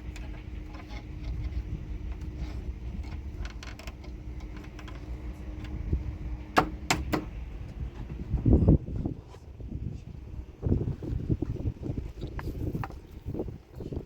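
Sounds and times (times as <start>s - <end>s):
steady low rumble: 0.0s - 14.0s
sharp clicks or knocks: 6.6s - 7.4s.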